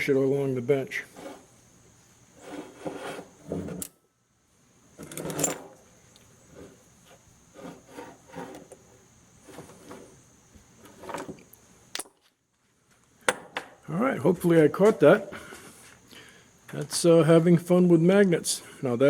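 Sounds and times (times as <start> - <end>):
magnets scraping on workbench: 1.0 - 1.6, 2.4 - 4.0, 5.0 - 10.2, 10.8 - 12.1.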